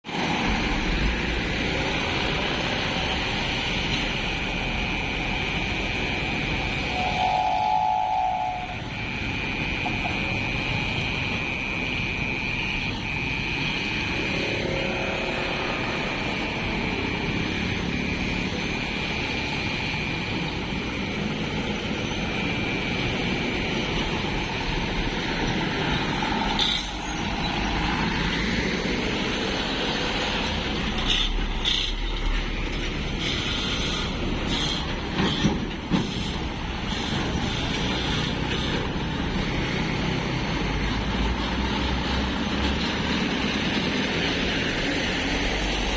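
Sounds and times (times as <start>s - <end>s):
thin high tone: 6.8s - 17.0s
train rumbling and rattling: 14.0s - 45.9s.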